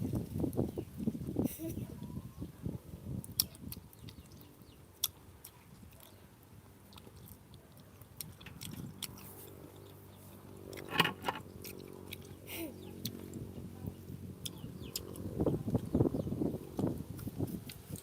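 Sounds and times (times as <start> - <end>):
person chewing juicy fruit: 3.1 - 18.0
wet mouth clicks and smacks: 3.2 - 4.3.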